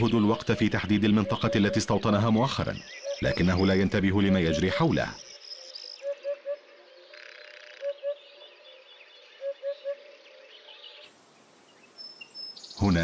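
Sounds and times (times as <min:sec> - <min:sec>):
hoopoe song low oop notes: 0:00.0 - 0:02.4
insects chirping: 0:00.0 - 0:13.0
small birds chirping: 0:00.0 - 0:13.0.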